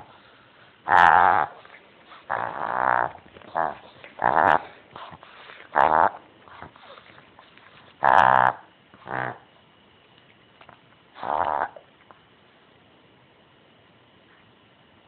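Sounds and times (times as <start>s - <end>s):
croaking frog-like calls: 0.8s - 1.6s, 2.3s - 4.8s, 5.7s - 6.3s, 8.0s - 9.5s, 11.2s - 11.8s.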